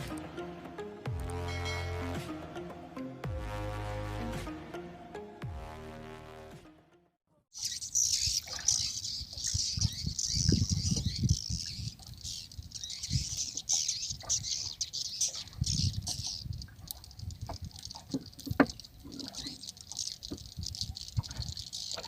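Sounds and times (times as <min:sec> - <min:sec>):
swiftlets twittering: 0:07.6 - 0:22.0.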